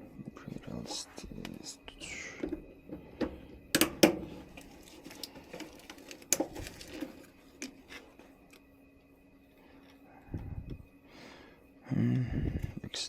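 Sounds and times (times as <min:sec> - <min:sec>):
faint steady hum: 0:00.0 - 0:13.0
plastic trap and hoses clicking: 0:03.7 - 0:07.8.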